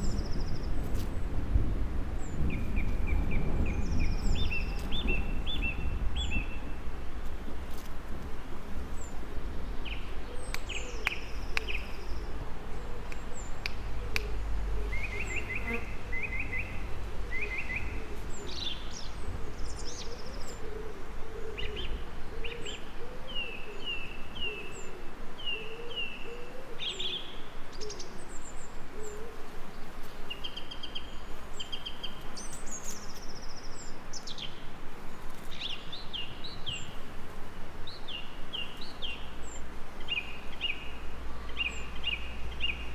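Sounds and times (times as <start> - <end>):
birds chirping and trilling: 2.2 - 6.8, 9.0 - 29.2, 37.9 - 42.9
low wavering bird calls: 9.0 - 29.4.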